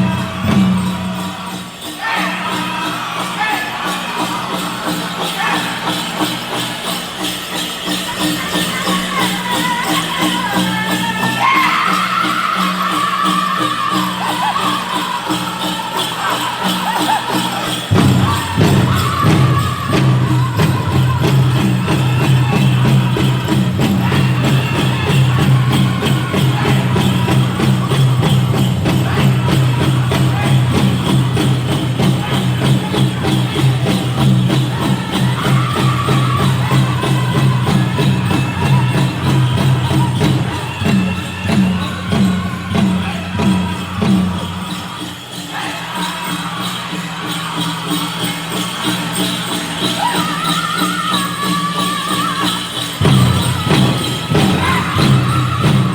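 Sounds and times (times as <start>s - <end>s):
big drum beating: 0.0s - 1.6s, 17.9s - 44.9s, 53.0s - 55.9s
dancers' bells jingling: 0.0s - 55.9s
drum group singing: 0.0s - 55.9s.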